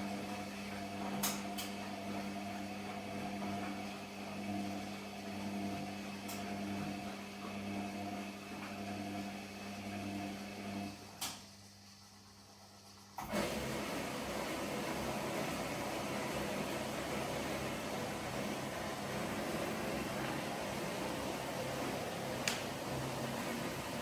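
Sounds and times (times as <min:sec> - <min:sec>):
washing machine humming: 0:00.0 - 0:24.0.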